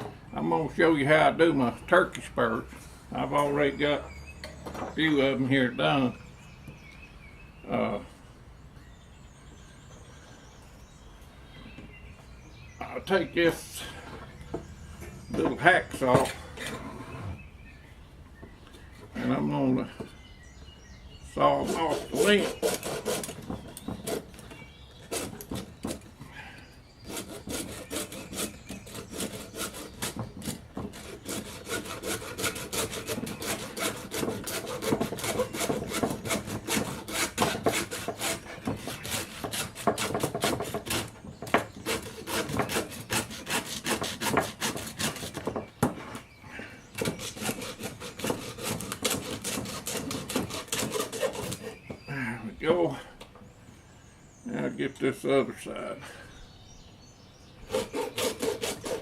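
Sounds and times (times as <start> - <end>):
hacksaw sawing through bone: 21.5 - 24.4, 25.1 - 26.0, 27.0 - 45.6, 47.0 - 51.9, 57.7 - 59.0.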